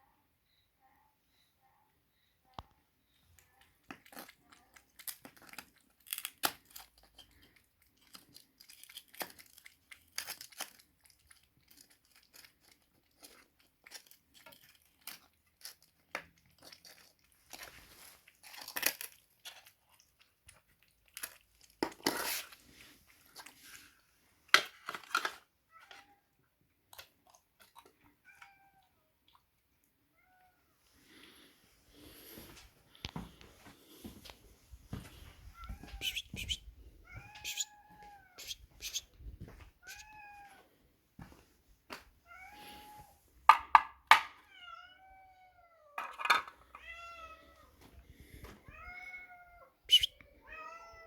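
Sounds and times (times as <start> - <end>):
cats crunching food: 3.3 - 30.0, 31.0 - 40.6, 47.5 - 48.7.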